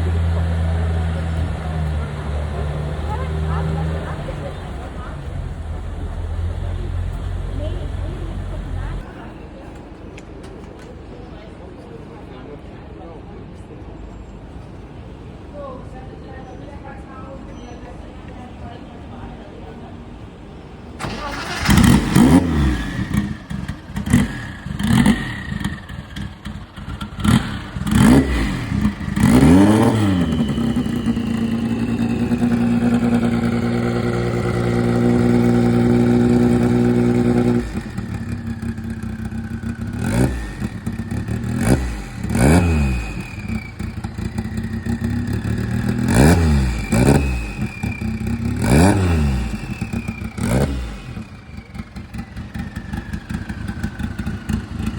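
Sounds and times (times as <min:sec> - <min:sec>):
engine revving: 0:00.0 - 0:09.1, 0:21.0 - 0:54.9.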